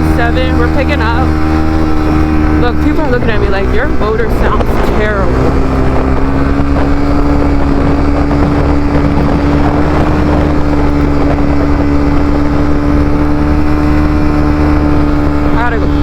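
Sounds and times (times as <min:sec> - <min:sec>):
person speaking: 0:00.0 - 0:01.4, 0:02.5 - 0:05.5, 0:15.4 - 0:16.0
motorcycle engine droning: 0:00.0 - 0:16.0
wind rushing over microphone: 0:00.0 - 0:16.0.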